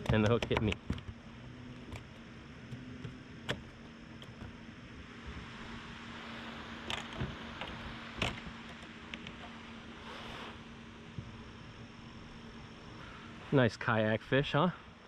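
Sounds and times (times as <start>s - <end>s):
sharp knocks and clicks: 0.0s - 1.2s, 1.8s - 4.6s
low hum and hiss: 0.0s - 15.0s.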